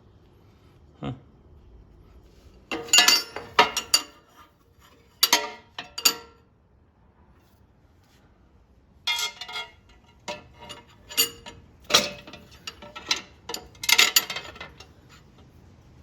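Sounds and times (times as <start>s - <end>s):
metal bolts and nuts clinking: 2.7s - 6.4s, 9.1s - 15.4s.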